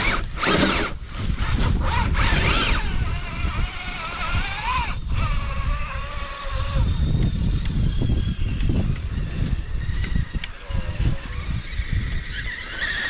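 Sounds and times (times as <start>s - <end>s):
electric motor gear whine: 0.0s - 13.0s.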